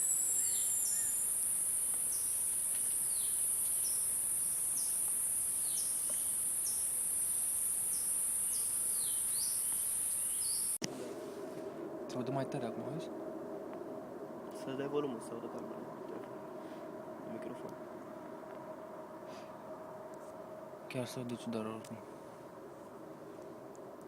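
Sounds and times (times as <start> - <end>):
bird chirping: 0.0 - 10.8
high-pitched insect chorus: 0.0 - 24.0.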